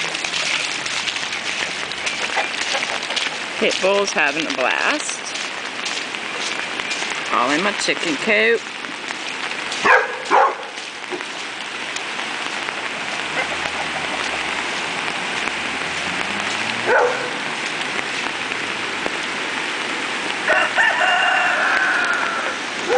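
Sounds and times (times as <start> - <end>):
steady rain hiss: 0.0 - 22.9
dog barking: 9.8 - 10.8, 16.8 - 17.4
rooster crowing: 20.4 - 22.6.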